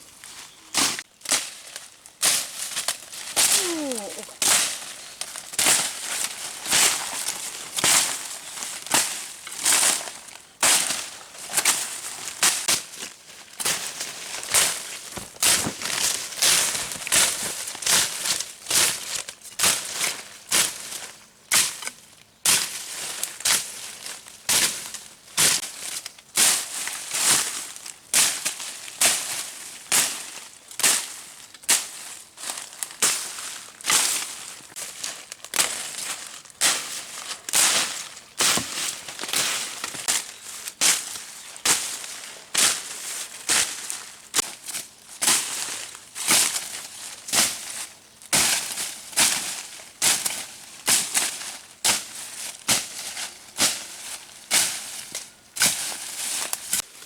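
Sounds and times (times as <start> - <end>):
sharp crunching rustling strokes: 0.0 - 21.0.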